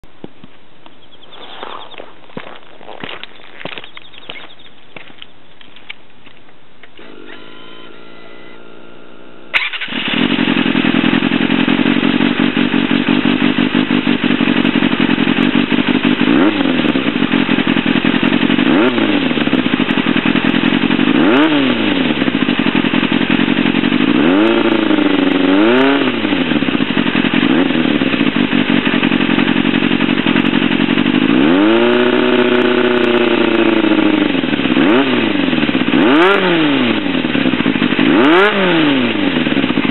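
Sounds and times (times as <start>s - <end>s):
motorcycle engine idling and revving: 0.0s - 39.9s
engine starter cranking: 6.8s - 12.0s.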